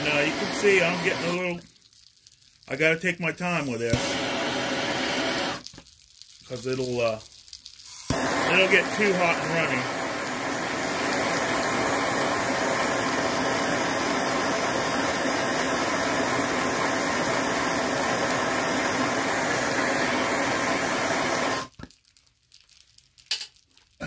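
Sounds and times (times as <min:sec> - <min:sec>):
heat tool blowing: 0:00.0 - 0:01.7, 0:03.5 - 0:05.8, 0:07.9 - 0:21.7.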